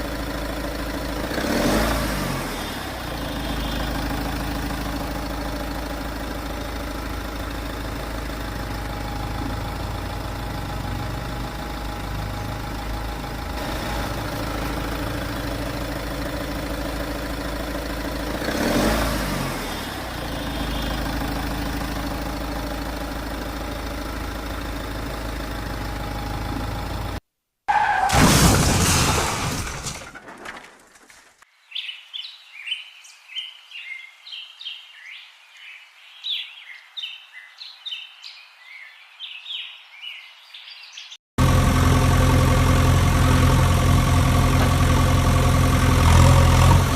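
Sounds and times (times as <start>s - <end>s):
vehicle engine running: 0.0s - 27.2s, 41.4s - 46.9s.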